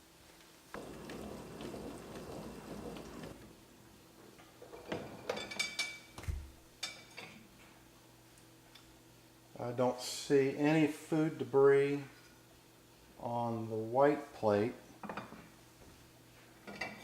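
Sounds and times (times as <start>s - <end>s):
dishwasher spraying water: 0.7s - 3.5s.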